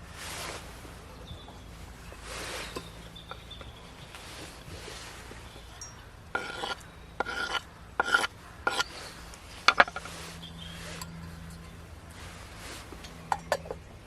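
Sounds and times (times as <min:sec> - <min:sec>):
metal cookware scraped and knocked: 0:06.4 - 0:08.9, 0:09.7 - 0:10.1.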